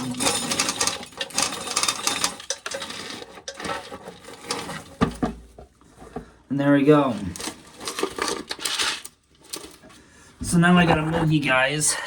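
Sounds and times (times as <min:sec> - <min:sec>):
corn kernels clicking and rattling: 0:00.0 - 0:05.0, 0:07.1 - 0:09.8.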